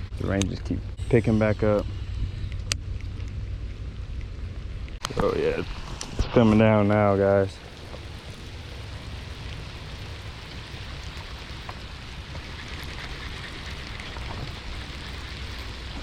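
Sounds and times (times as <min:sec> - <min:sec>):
low rumble: 0:00.0 - 0:16.0
raindrops ticking near microphone: 0:02.4 - 0:16.0
heavy rain pouring: 0:04.7 - 0:16.0.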